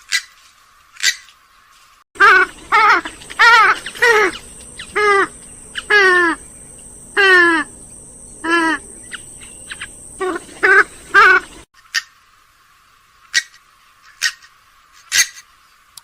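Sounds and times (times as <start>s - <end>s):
bird harsh nasal calls: 2.2s - 12.2s.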